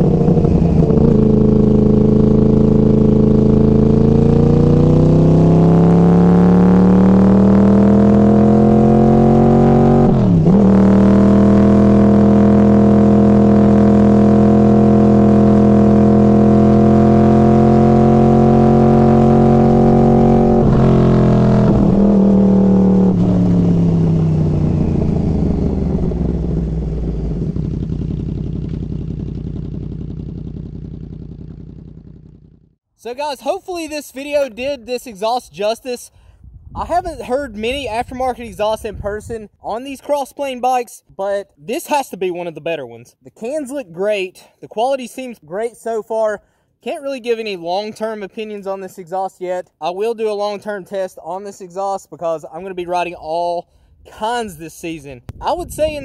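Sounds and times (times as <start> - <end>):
motorcycle engine revving: 0.0 - 32.8.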